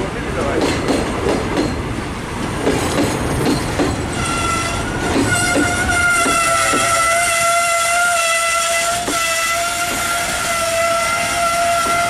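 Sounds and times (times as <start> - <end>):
wheels clacking over rail joints: 0.2 - 12.0
high-pitched wheel squeal: 4.1 - 12.0.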